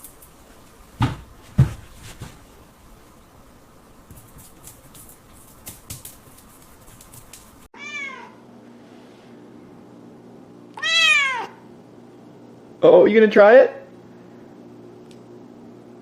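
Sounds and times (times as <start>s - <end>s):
kitten meowing: 7.8s - 8.4s, 10.8s - 11.6s.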